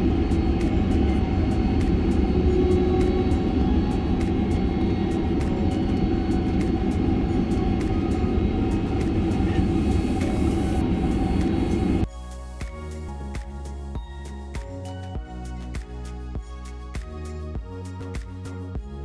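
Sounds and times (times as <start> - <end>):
low rumble of engines and wheels: 0.0 - 12.1
quiet music: 0.0 - 19.0.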